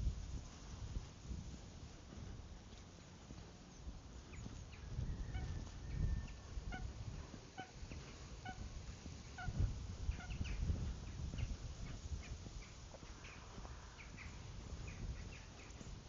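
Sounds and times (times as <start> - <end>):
bird calling: 12.2 - 15.8.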